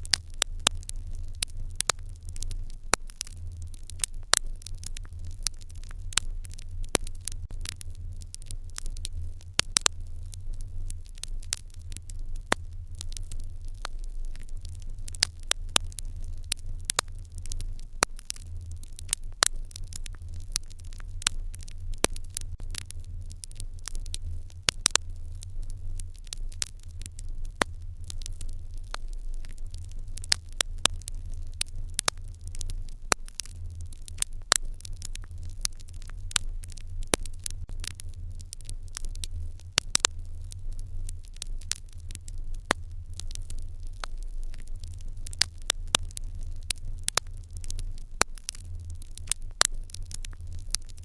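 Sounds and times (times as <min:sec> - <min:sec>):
wood fire crackling: 0:00.0 - 0:51.0.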